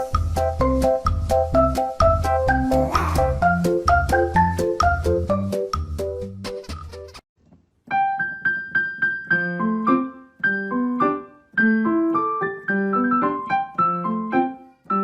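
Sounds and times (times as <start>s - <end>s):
light piano melody: 7.8s - 15.0s.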